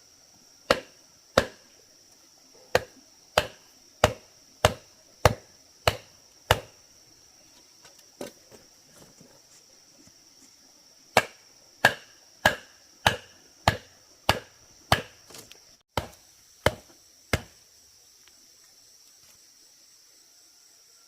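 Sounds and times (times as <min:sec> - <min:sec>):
high insect drone: 0:00.0 - 0:21.0
sharp chopping tool strikes: 0:00.7 - 0:01.6, 0:02.7 - 0:06.7, 0:11.2 - 0:15.2, 0:16.0 - 0:17.5.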